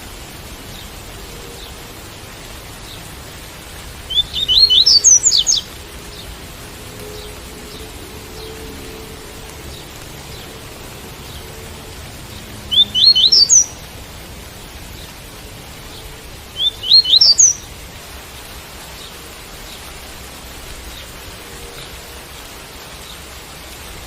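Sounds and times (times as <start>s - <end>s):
rain hiss: 0.0s - 24.0s
bird singing quick rising notes: 4.1s - 6.2s, 12.6s - 13.8s, 16.6s - 17.6s.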